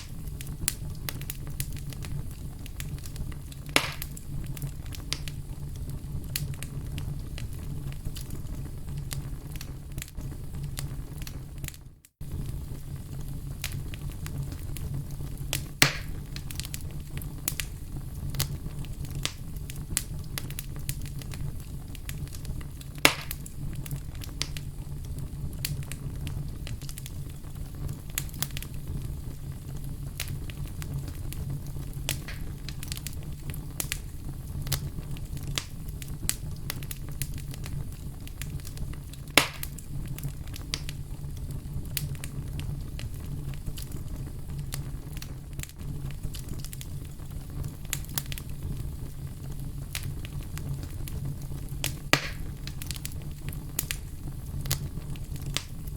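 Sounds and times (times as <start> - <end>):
fire popping: 0.0 - 55.9
low rumble of flames: 0.0 - 55.9
wood fire crackling: 0.0 - 55.9.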